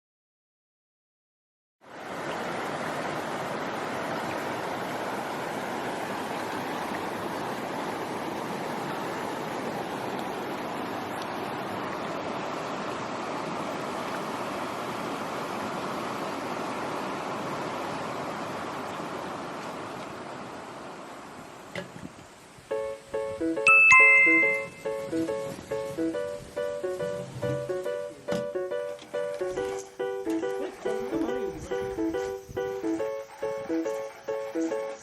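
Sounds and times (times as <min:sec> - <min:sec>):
steady rushing hiss: 0:21.5 - 0:23.6, 0:24.5 - 0:35.0.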